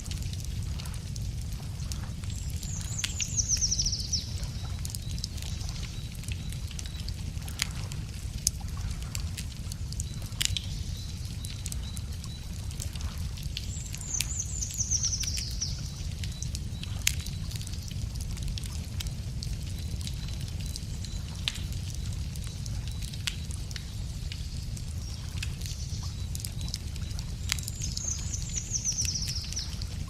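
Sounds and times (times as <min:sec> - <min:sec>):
wood fire crackling and popping: 0:00.0 - 0:30.0
songbird trill: 0:02.6 - 0:07.1, 0:13.6 - 0:17.0, 0:25.0 - 0:29.9.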